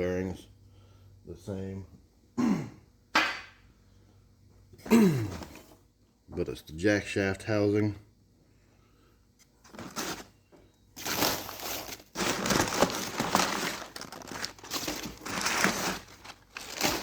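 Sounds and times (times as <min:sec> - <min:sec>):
packaging crinkling and rustling: 0:09.6 - 0:17.0.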